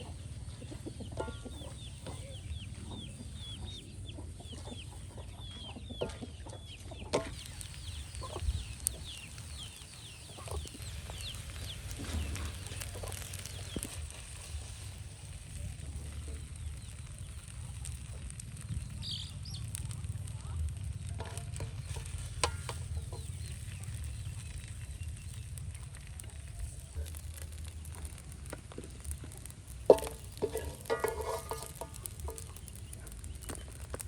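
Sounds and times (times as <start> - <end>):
birds chirping: 0.0 - 34.0
steady low rumble: 7.3 - 34.0.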